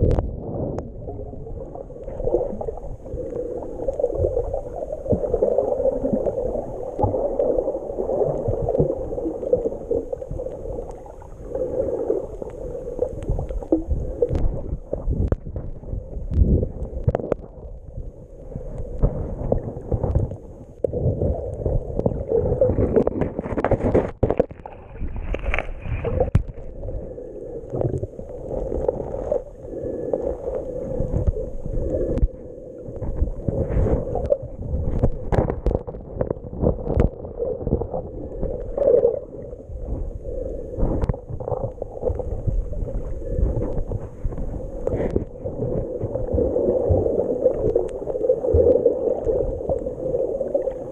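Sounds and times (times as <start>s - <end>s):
wind on microphone: 0.0s - 1.5s, 30.6s - 47.9s
water splashing: 19.0s - 26.8s, 40.8s - 50.9s.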